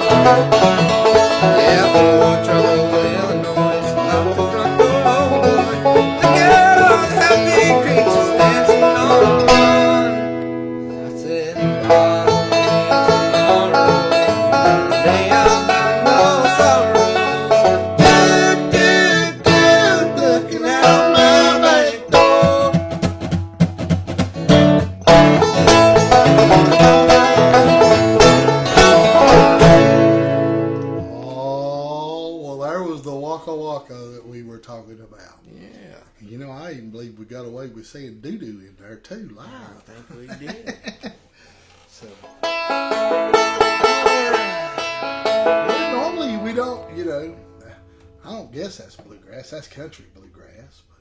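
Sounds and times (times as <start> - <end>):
guitar picking: 0.0 - 31.7, 42.2 - 49.2
banjo picking: 0.0 - 31.9, 41.7 - 50.0.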